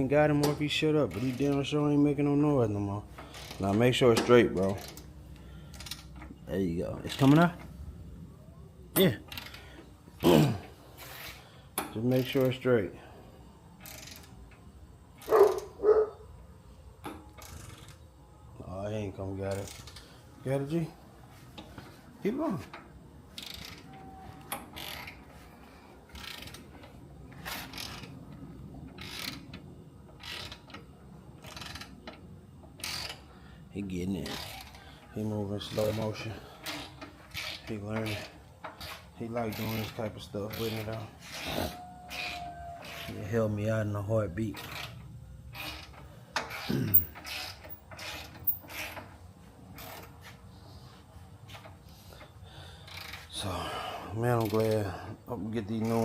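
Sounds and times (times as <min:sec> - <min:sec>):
ratchet wrench clicking: 0:03.2 - 0:06.3, 0:13.8 - 0:15.8, 0:17.0 - 0:18.0, 0:23.3 - 0:25.3, 0:26.1 - 0:28.2, 0:28.9 - 0:33.3, 0:34.2 - 0:34.9, 0:35.8 - 0:41.5, 0:44.5 - 0:49.1, 0:51.5 - 0:53.4
socket ratchet clicking: 0:13.8 - 0:14.6, 0:44.6 - 0:49.0.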